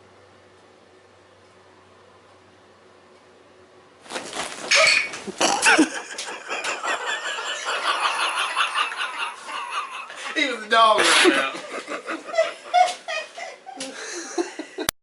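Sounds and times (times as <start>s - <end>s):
people laughing: 5.4s - 14.9s
people talking: 10.2s - 11.8s.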